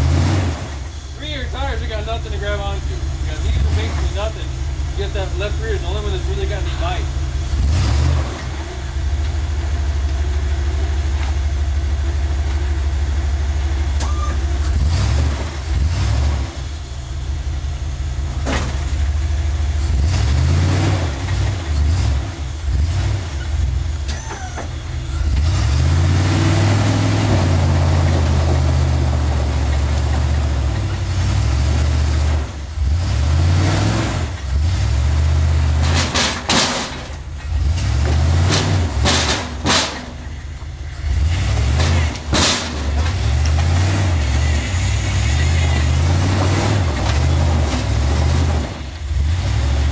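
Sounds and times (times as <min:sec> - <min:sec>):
off-road engine revving: 0:00.0 - 0:49.9
sharp knocks: 0:35.8 - 0:37.2, 0:37.8 - 0:40.3.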